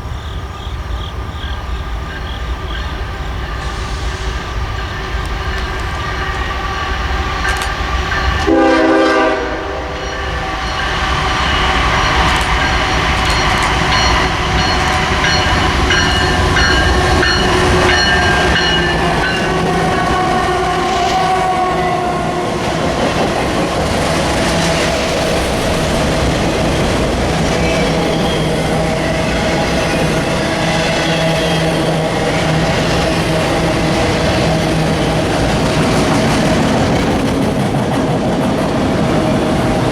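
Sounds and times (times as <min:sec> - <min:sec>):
train wheel and rail noise: 0:00.0 - 0:39.9
locomotive horn blast: 0:08.2 - 0:10.6, 0:16.3 - 0:22.7.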